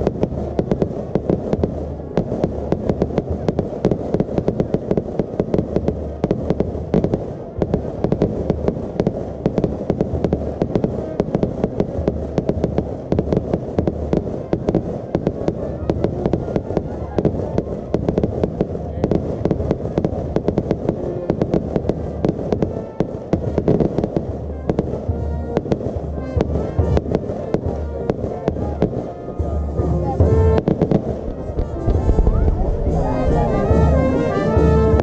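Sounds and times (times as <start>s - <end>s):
fireworks bangs: 0.0s - 35.0s
low rumble: 29.4s - 35.0s.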